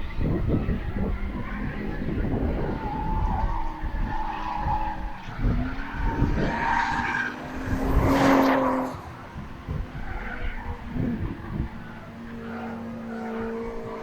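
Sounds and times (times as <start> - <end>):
car engine revving: 0.1 - 14.0.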